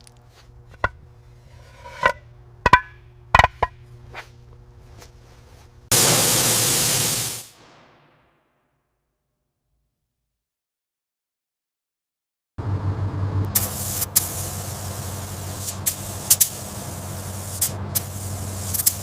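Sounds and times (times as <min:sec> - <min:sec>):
steady hum: 0:00.0 - 0:07.6, 0:12.6 - 0:19.0
sharp metallic knocks: 0:01.8 - 0:03.8
loud burst of hiss: 0:05.9 - 0:08.1, 0:13.6 - 0:19.0.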